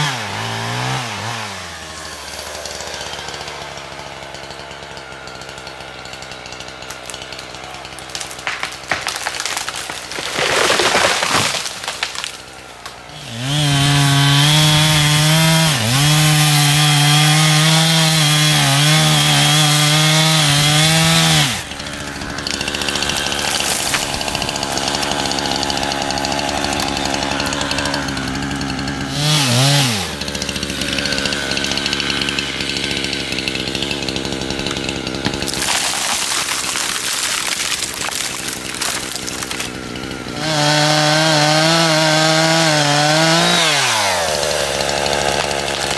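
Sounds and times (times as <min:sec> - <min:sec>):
chainsaw engine revving: 0:00.0 - 0:45.9.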